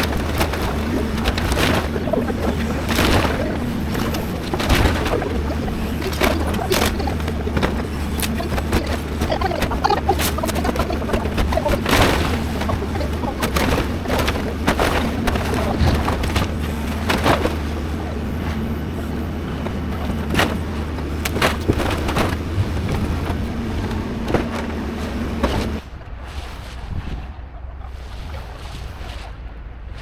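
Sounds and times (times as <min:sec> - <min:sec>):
debris cracking and crashing: 0:00.0 - 0:18.6
excavator engine running: 0:00.0 - 0:25.8.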